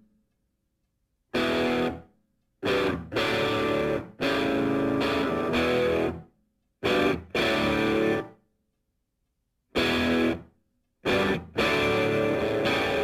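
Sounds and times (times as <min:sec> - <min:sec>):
distorted electric guitar music: 0:01.4 - 0:02.0, 0:02.6 - 0:06.2, 0:06.8 - 0:08.4, 0:09.8 - 0:10.4, 0:11.0 - 0:13.0.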